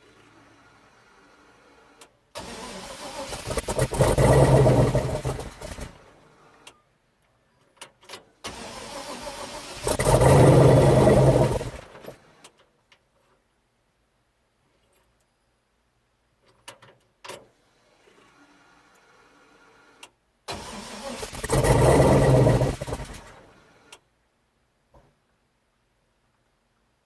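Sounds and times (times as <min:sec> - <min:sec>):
starter motor cranking: 0:02.4 - 0:06.1, 0:08.5 - 0:12.2, 0:20.5 - 0:23.6
engine running loud: 0:02.6 - 0:06.0, 0:09.3 - 0:12.2, 0:21.2 - 0:23.5.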